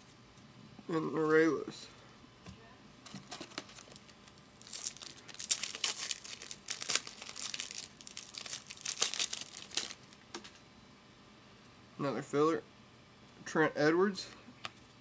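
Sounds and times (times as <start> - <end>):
foil wrapper crinkling and tearing: 3.5 - 10.2.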